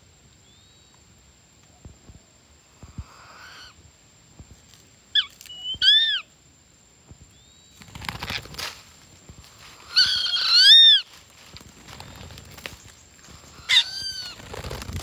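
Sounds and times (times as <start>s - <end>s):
whistled bird calls: 5.2s - 6.3s
bird chirp: 11.9s - 15.0s.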